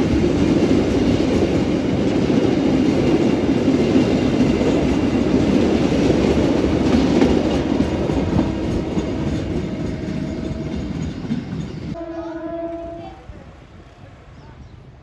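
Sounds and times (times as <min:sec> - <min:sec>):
train wheels clattering over rails: 0:00.0 - 0:12.0.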